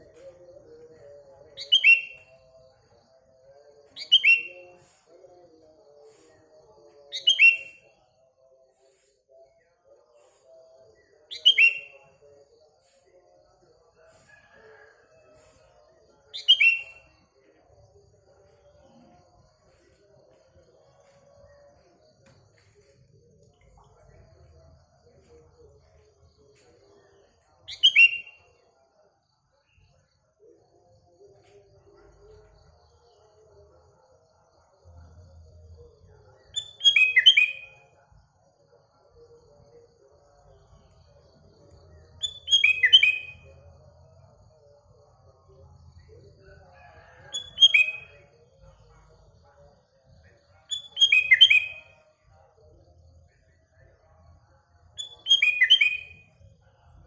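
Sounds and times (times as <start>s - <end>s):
bird singing whistled phrases: 1.6s - 2.3s, 4.0s - 4.6s, 7.2s - 7.8s, 11.3s - 12.0s, 27.7s - 28.4s, 42.2s - 43.4s, 50.7s - 51.8s, 55.0s - 56.2s
faint bird chatter: 46.0s - 49.3s.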